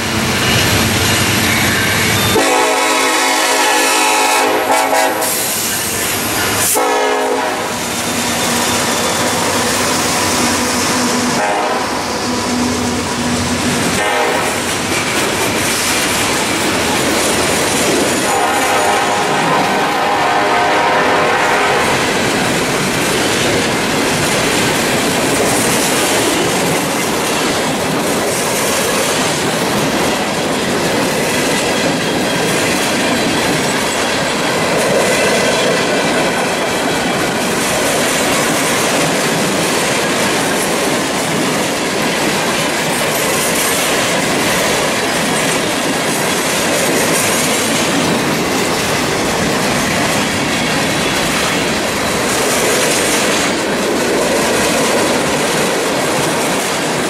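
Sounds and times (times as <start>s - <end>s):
train wheel squeal: 0.0s - 2.8s, 4.8s - 7.1s, 7.7s - 19.6s, 28.3s - 39.0s
freight train cars rolling past: 0.0s - 57.0s.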